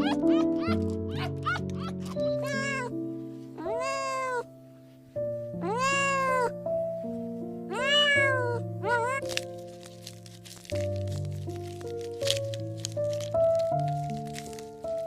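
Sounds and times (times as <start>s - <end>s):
cat meowing: 0.0s - 3.0s, 3.6s - 4.5s, 5.6s - 6.6s, 7.7s - 9.4s
background music: 0.0s - 15.0s.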